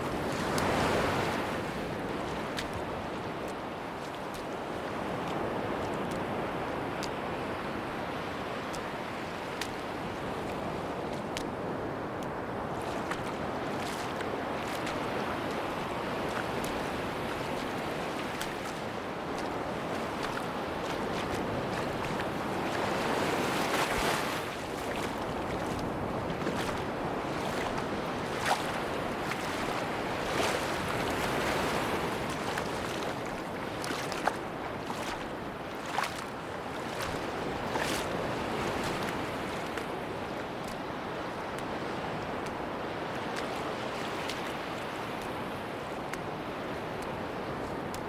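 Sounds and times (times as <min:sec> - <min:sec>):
ocean waves washing on beach: 0:00.0 - 0:48.0.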